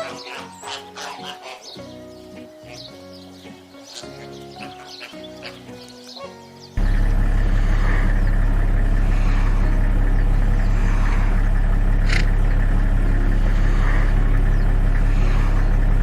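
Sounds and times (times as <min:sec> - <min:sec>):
low engine-like drone: 0:06.8 - 0:16.0.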